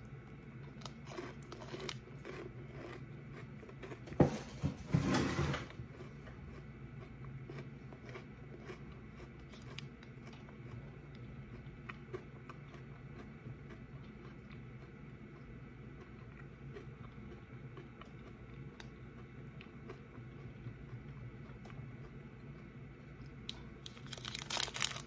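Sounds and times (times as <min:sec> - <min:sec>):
chewing crunchy biscuit: 0:00.0 - 0:25.0.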